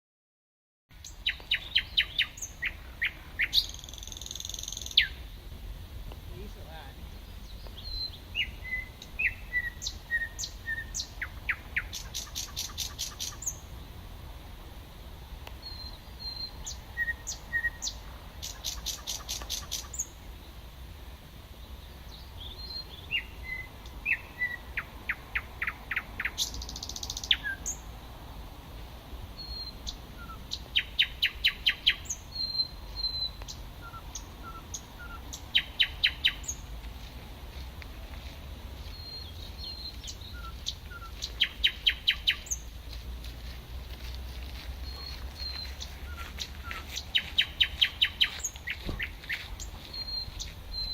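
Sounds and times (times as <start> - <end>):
bird rapid clicking song: 1.0 - 5.2, 7.4 - 13.6, 16.3 - 20.1, 23.8 - 27.7, 29.6 - 36.6, 44.8 - 50.9
bird whistles and chirps: 7.8 - 13.6, 15.6 - 19.9, 29.4 - 36.6, 38.9 - 42.6, 44.8 - 50.9.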